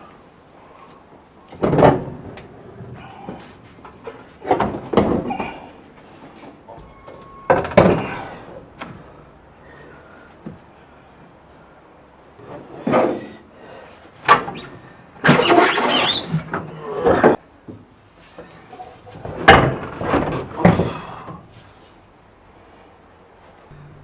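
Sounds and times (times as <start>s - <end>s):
metal scraping and squealing: 6.3s - 10.1s, 23.7s - 24.0s.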